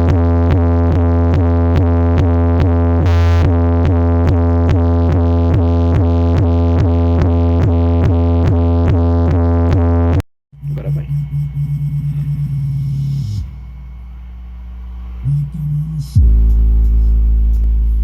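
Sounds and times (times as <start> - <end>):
electronic music: 0.0 - 18.0.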